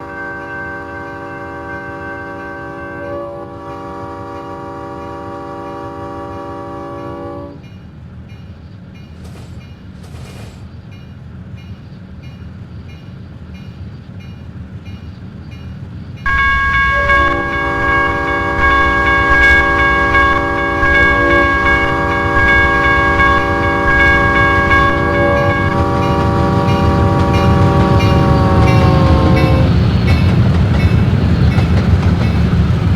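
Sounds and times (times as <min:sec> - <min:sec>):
locomotive air horn: 0:00.0 - 0:07.6, 0:16.3 - 0:29.8
train rumble: 0:00.0 - 0:32.9.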